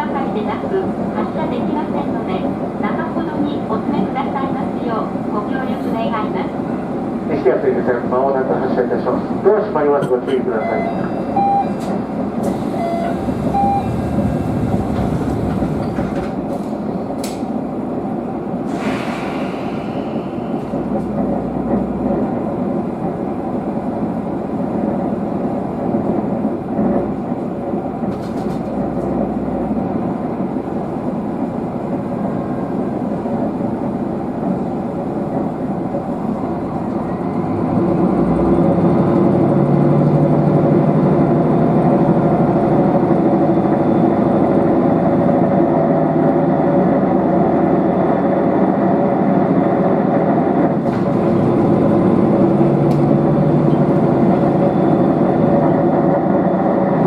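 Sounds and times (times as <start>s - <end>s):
train engine drone: 0.0s - 57.0s.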